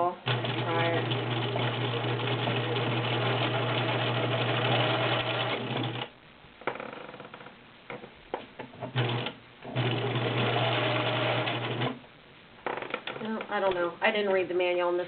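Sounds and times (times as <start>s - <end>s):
sewing machine stitching: 0.2s - 6.1s, 8.7s - 12.0s.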